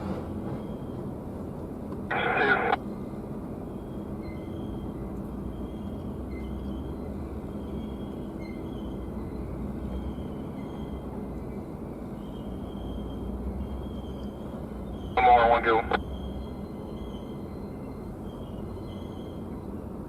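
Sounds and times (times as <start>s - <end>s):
diesel locomotive engine running: 0.0s - 20.0s
scanner radio burst: 2.1s - 2.8s, 15.2s - 16.0s.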